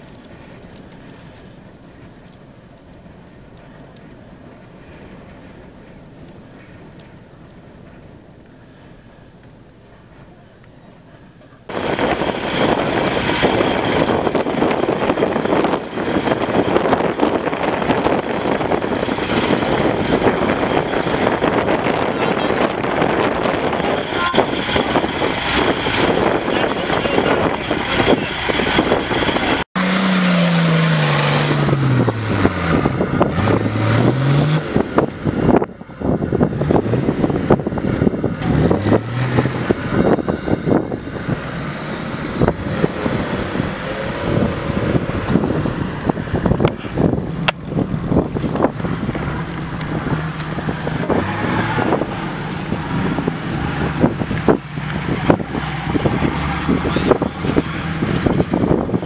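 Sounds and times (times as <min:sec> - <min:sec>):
off-road engine revving: 0:11.7 - 0:59.0
wind on microphone: 0:11.7 - 0:59.0
tyres working through sand: 0:24.0 - 0:35.6, 0:36.2 - 0:47.6.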